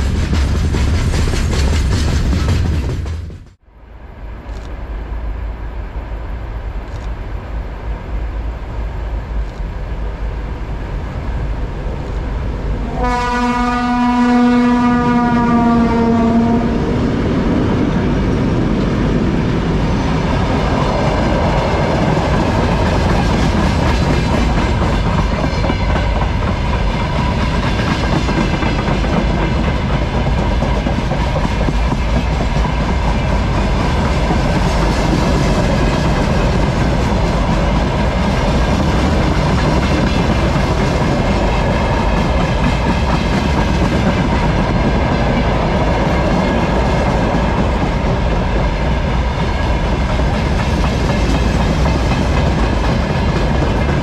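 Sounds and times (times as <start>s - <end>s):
train passing loudly: 0.0s - 54.0s
train horn blast: 12.8s - 17.1s.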